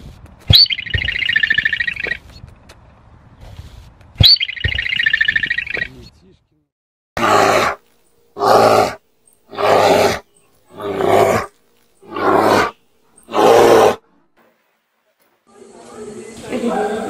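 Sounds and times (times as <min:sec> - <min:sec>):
bear roaring: 0:07.2 - 0:14.1.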